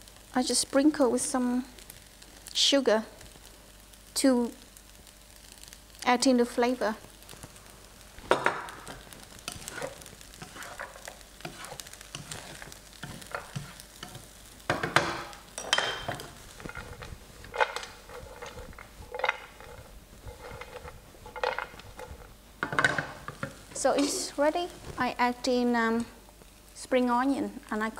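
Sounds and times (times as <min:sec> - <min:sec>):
rice sizzling in a pan: 0:00.0 - 0:27.9
utensil scraping a pan: 0:08.3 - 0:24.3.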